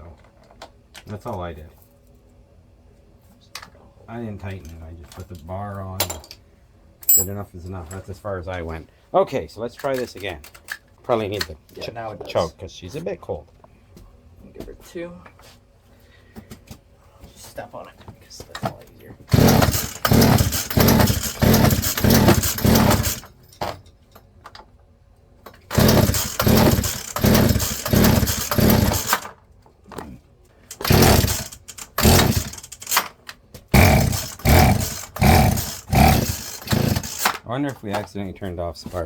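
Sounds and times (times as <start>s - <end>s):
starter cord pulls: 19.3s - 23.3s, 25.5s - 29.3s, 30.7s - 37.4s
chainsaw engine turning over: 19.3s - 23.4s, 25.6s - 29.3s, 30.7s - 37.4s.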